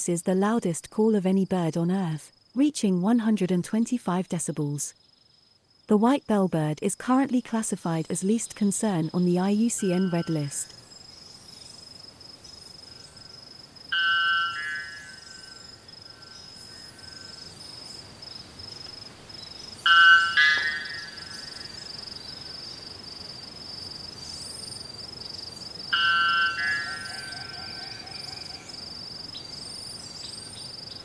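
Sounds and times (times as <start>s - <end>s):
bird giving metallic bell-like calls: 9.7s - 10.6s, 13.9s - 17.3s, 19.8s - 22.3s, 25.9s - 28.8s.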